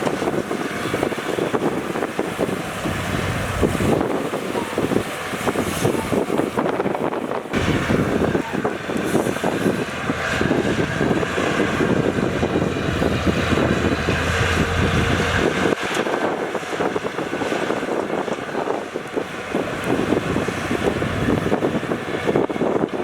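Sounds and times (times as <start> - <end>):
diesel machinery running: 0.0 - 23.0
low steady drone: 7.5 - 15.8.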